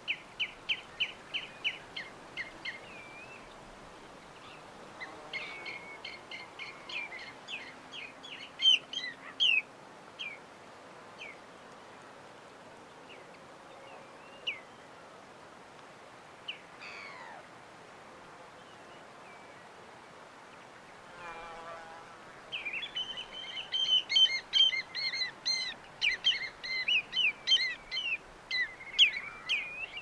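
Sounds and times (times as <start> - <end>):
steady background hiss: 0.0 - 30.0
birds chirping: 22.4 - 30.0.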